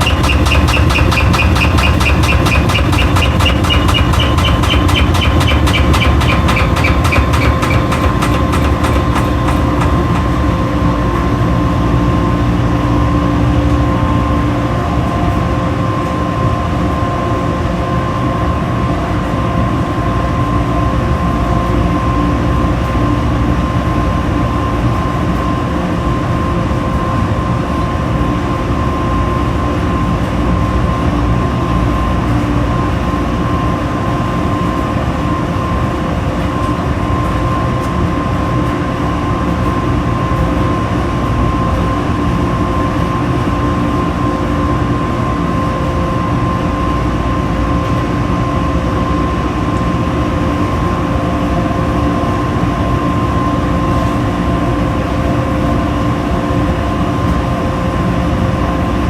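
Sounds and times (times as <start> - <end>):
rapid ticking pulse: 0.0 - 10.6
washing machine rumbling: 0.0 - 15.7
high rising whine: 0.0 - 24.8.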